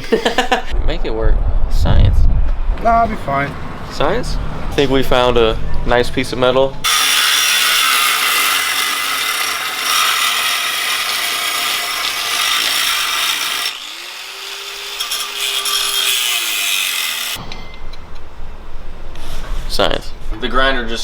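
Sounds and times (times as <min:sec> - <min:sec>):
angle grinder grinding steel: 0:06.8 - 0:17.4.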